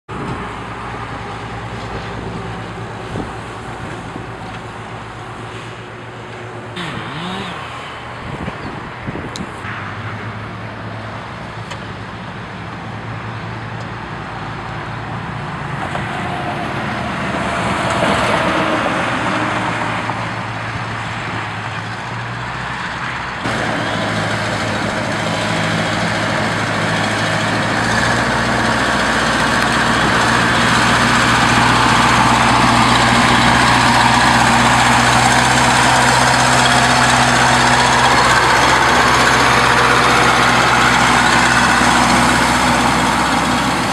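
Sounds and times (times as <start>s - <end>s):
vehicle engine running: 0.1s - 8.4s, 23.4s - 43.9s
road and air noise: 0.1s - 43.9s.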